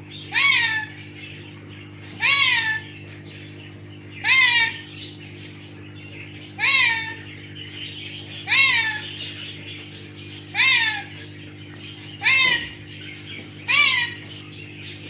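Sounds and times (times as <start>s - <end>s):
steady low hum: 0.0s - 15.0s
parrot mimicking cat meow: 0.3s - 1.0s, 2.2s - 2.9s, 4.2s - 4.8s, 6.6s - 7.2s, 8.5s - 9.0s, 10.6s - 11.1s, 12.2s - 12.7s.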